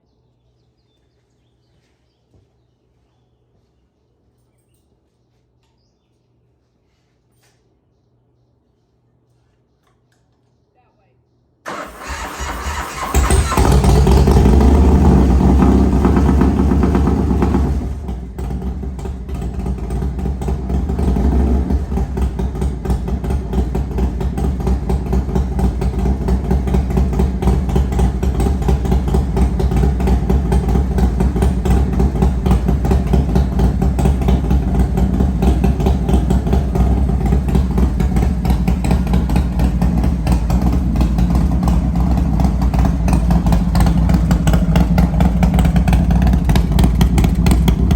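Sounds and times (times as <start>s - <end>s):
motorcycle engine idling: 11.7s - 47.9s.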